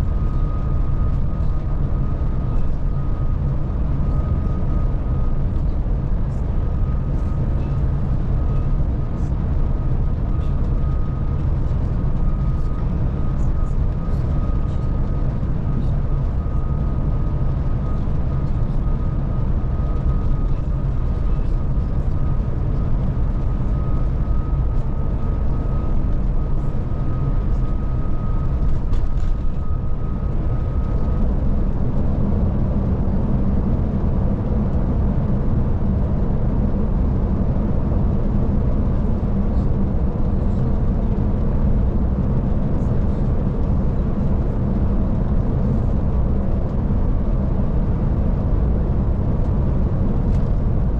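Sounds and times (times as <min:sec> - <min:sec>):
faint high whine: 0:00.0 - 0:36.6
coach engine drone: 0:00.0 - 0:50.9.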